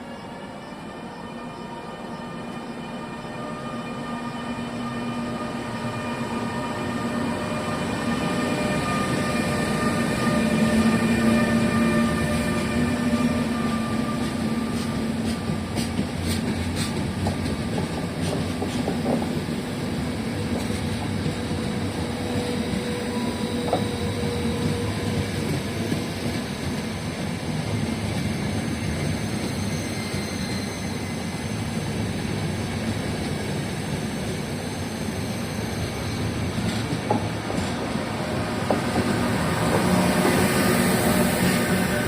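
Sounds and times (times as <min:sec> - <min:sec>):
train wheels rumbling on track: 0:00.0 - 0:42.0.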